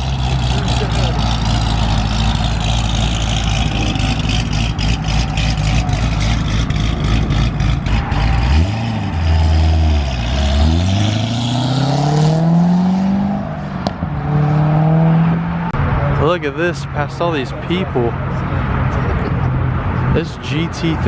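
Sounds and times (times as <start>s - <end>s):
car engine lumpy idle: 0.0s - 8.0s.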